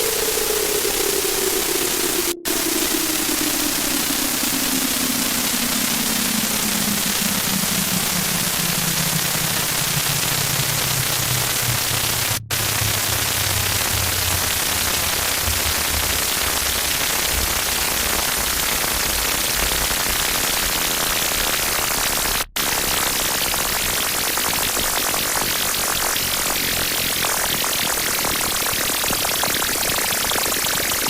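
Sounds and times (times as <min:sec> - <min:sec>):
low droning tone sliding downward: 0:00.0 - 0:18.0
harsh static noise: 0:00.0 - 0:26.0.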